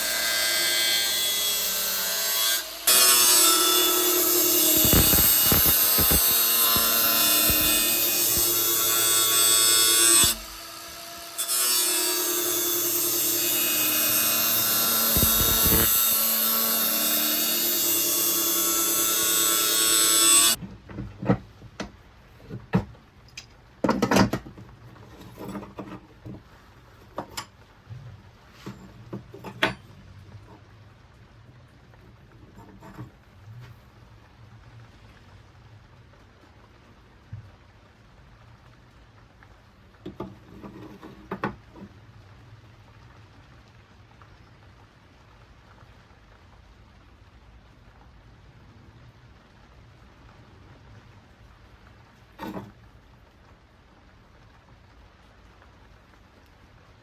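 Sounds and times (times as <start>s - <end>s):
angle grinder grinding steel: 0.0s - 20.6s.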